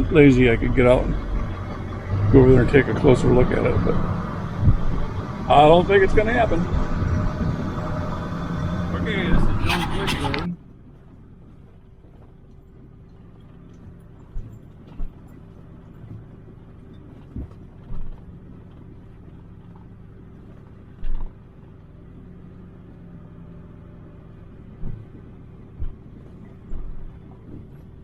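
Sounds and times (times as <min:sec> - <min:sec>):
vehicle engine and road hum: 0:00.0 - 0:28.0
knocks and thumps from bumps: 0:04.0 - 0:05.3, 0:17.1 - 0:18.4, 0:19.7 - 0:21.4, 0:24.7 - 0:28.0.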